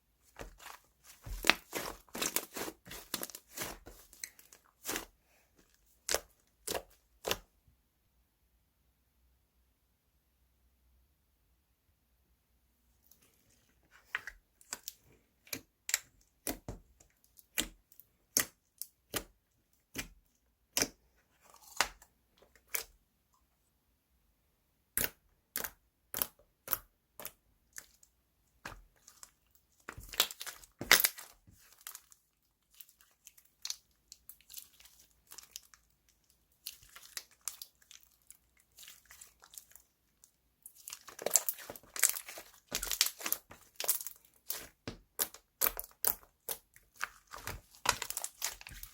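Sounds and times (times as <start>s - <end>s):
slime popping and crackling: 0.4s - 5.1s, 28.6s - 39.9s, 40.6s - 48.9s.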